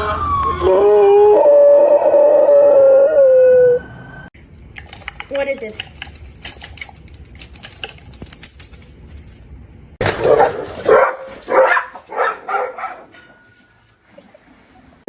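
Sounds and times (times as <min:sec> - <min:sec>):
light clinking: 0:04.4 - 0:09.6
dog barking loudly: 0:10.1 - 0:13.2.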